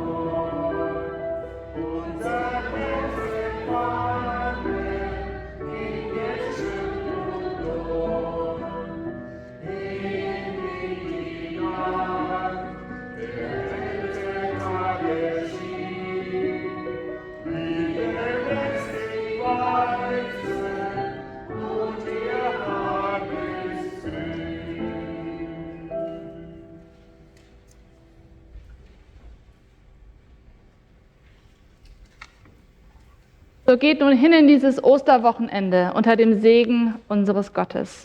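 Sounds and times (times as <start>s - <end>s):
church choir singing a hymn: 0.0s - 27.4s.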